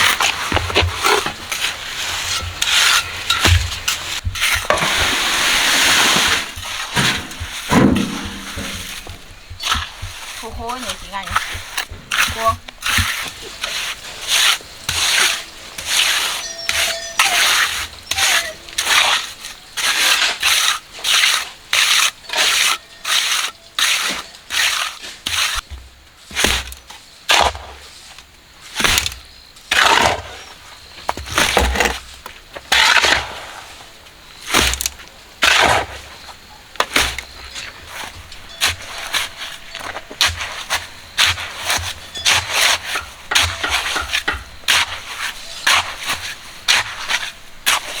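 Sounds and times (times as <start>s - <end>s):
shovel scraping concrete mix: 0.0s - 48.0s
dull thumps of dropped loads: 2.4s - 5.2s, 6.2s - 13.4s.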